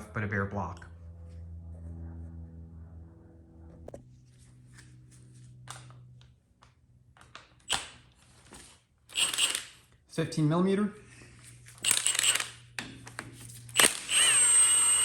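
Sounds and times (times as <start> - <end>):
low steady hum: 0.0 - 8.5
tools and engine parts clicking: 9.1 - 10.0, 11.8 - 14.6.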